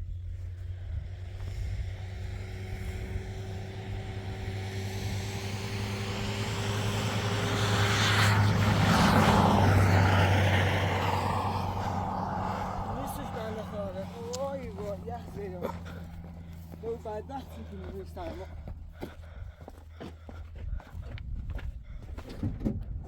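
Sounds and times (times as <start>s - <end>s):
vehicle engine passing: 0.0s - 19.3s.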